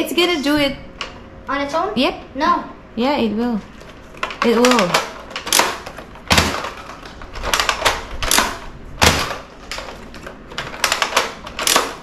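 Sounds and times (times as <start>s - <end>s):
toy blaster plastic clacks: 4.2s - 12.0s.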